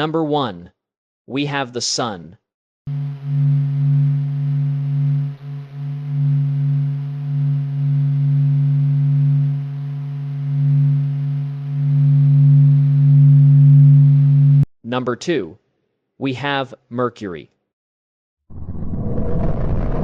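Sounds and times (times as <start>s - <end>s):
low electronic hum: 2.9s - 14.7s.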